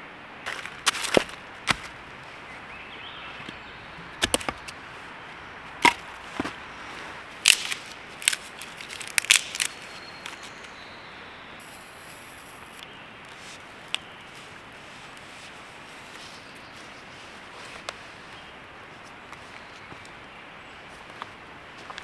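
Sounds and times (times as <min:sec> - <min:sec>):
dry wood cracking and snapping: 0:00.5 - 0:10.8.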